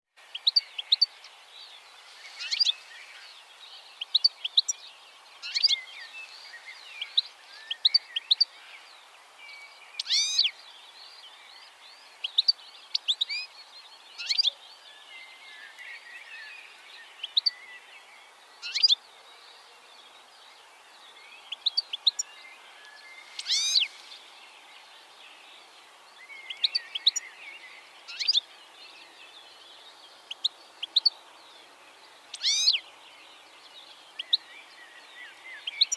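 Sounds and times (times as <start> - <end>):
faint steady hiss: 0.1 - 35.9
bird chirping: 0.2 - 35.9
longer bird call: 10.0 - 10.5, 21.5 - 24.3, 32.3 - 32.8.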